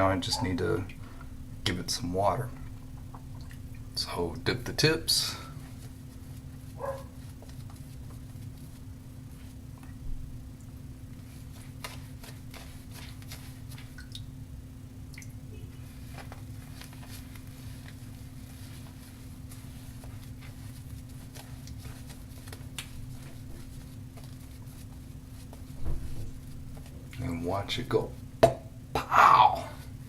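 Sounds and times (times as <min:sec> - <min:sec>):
shaving brush squishing lather: 0:11.2 - 0:14.0, 0:15.8 - 0:25.8.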